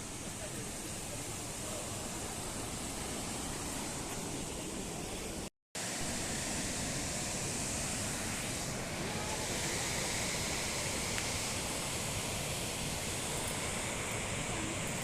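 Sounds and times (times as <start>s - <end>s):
waterfall rushing: 5.8s - 15.0s.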